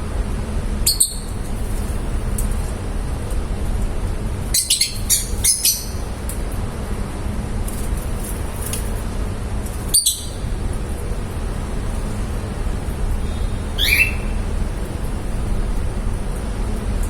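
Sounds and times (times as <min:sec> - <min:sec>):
lovebirds chirping: 0:04.6 - 0:06.1, 0:09.9 - 0:10.5, 0:11.6 - 0:15.6
steady low rumble: 0:10.3 - 0:17.0.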